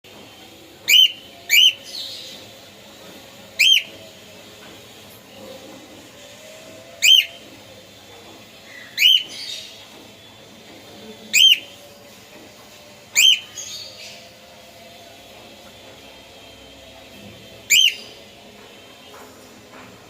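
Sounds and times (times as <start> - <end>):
cockatiel whistling: 0.8 - 2.3, 3.6 - 4.0, 7.0 - 7.5, 8.7 - 9.7, 11.3 - 11.8, 13.1 - 14.2, 17.6 - 18.2.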